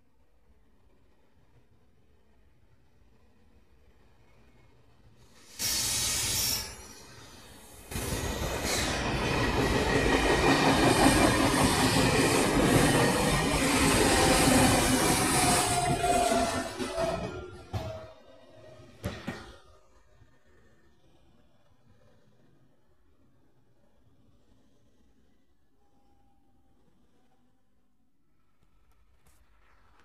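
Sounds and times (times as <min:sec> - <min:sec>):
train wheels clattering on rails: 0:07.8 - 0:19.8.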